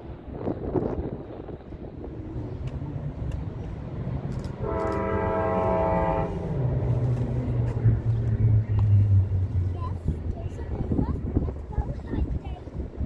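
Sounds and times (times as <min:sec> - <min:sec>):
train running hum: 0:00.0 - 0:13.0
train horn: 0:04.6 - 0:07.0.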